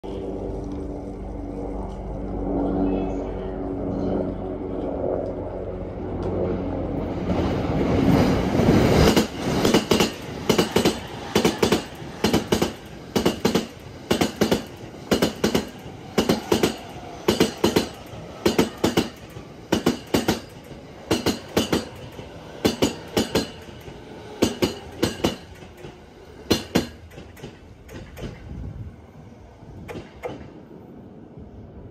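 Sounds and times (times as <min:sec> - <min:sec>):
train passing at speed: 0:00.0 - 0:31.9
wheels clacking over rail joint: 0:09.0 - 0:28.5.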